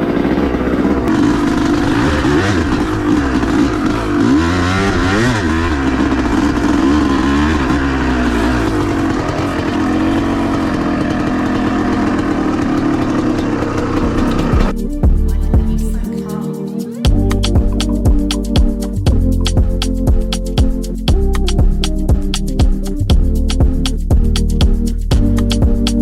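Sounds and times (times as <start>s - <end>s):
dirt bike engine revving: 0.0s - 16.3s.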